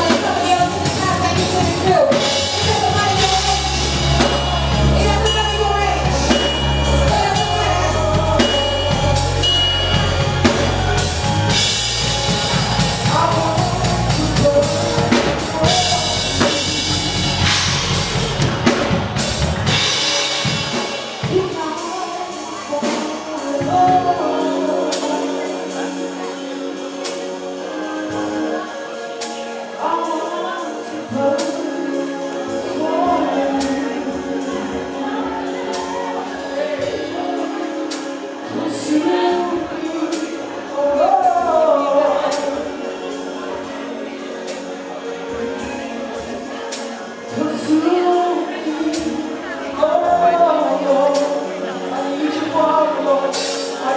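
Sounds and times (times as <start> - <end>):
bass guitar: 0.0 - 21.8
drum kit: 0.0 - 30.1, 52.2 - 53.9
people singing: 0.0 - 53.9
sustained instruments: 0.0 - 53.9.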